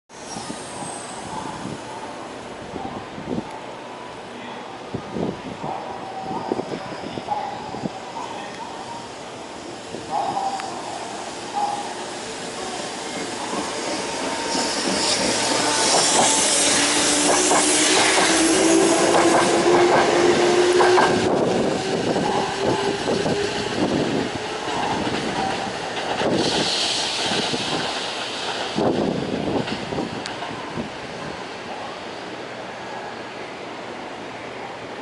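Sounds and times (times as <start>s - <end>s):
electric train whine: 0.1s - 35.0s
train wheels clacking on rails: 9.7s - 31.5s.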